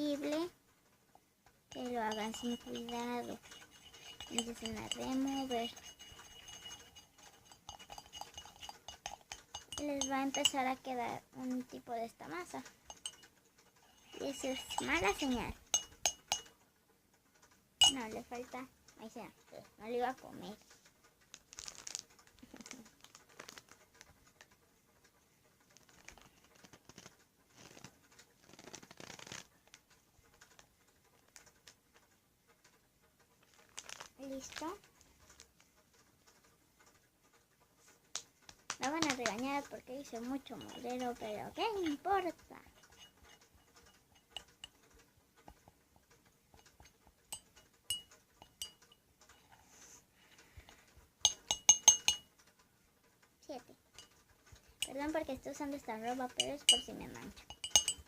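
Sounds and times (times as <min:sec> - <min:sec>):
metal spoon clinking container: 0:01.7 - 0:10.7, 0:12.9 - 0:16.5, 0:17.8 - 0:18.2, 0:40.2 - 0:42.0, 0:42.7 - 0:44.8, 0:46.6 - 0:48.9, 0:51.2 - 0:52.3, 0:56.3 - 0:58.0
slime being stirred in a cup: 0:01.7 - 0:11.0, 0:12.4 - 0:13.2, 0:13.8 - 0:16.4, 0:17.8 - 0:18.2, 0:38.8 - 0:44.8, 0:46.6 - 0:48.8, 0:51.3 - 0:52.2, 0:54.8 - 0:58.0.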